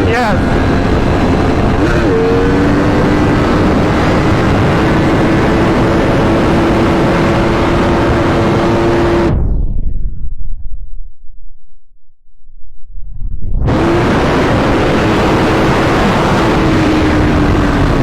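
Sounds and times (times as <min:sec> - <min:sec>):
road noise: 0:00.0 - 0:09.3, 0:13.6 - 0:18.0
vehicle engine running hard: 0:00.0 - 0:09.4, 0:13.6 - 0:18.0
wind noise: 0:00.0 - 0:18.0.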